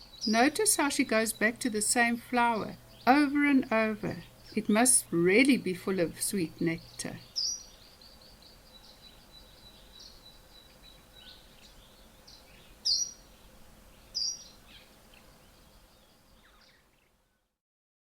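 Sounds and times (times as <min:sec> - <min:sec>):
small bird chirping: 0:00.0 - 0:05.4, 0:06.0 - 0:17.2.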